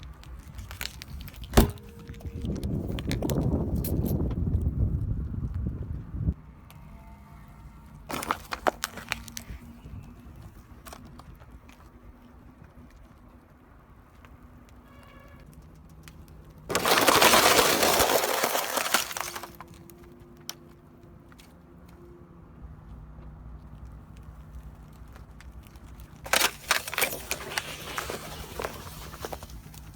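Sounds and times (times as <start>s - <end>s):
tyre crushing objects: 0.5s - 2.3s, 8.1s - 9.3s, 16.7s - 19.8s.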